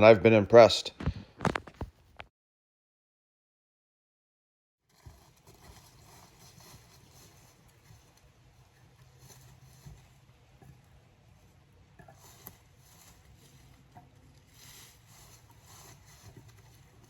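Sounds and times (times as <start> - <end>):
faint rustling: 4.9 - 17.0.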